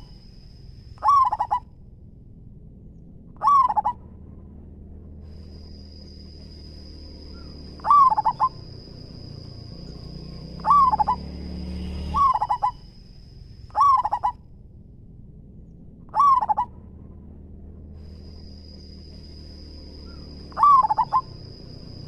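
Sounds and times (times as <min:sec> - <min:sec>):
dove cooing: 0:01.0 - 0:01.6, 0:03.4 - 0:04.0, 0:07.3 - 0:08.8, 0:09.9 - 0:11.3, 0:12.1 - 0:12.8, 0:13.7 - 0:14.4, 0:16.1 - 0:16.7, 0:20.0 - 0:22.0.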